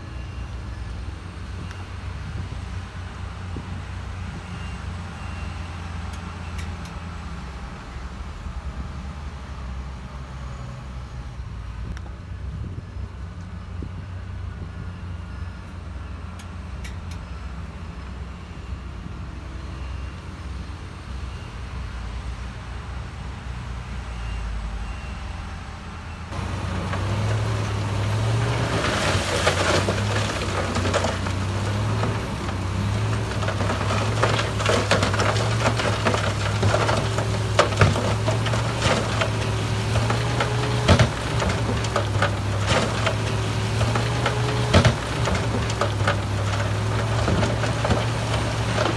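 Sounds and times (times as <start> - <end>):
diesel machinery engine running: 0.0 - 48.9
machinery clattering and knocking: 26.3 - 48.9.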